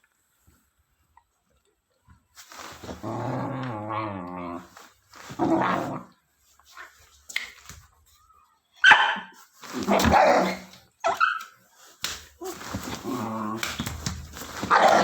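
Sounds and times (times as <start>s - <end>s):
dog barking: 8.8s - 11.4s, 14.7s - 15.0s.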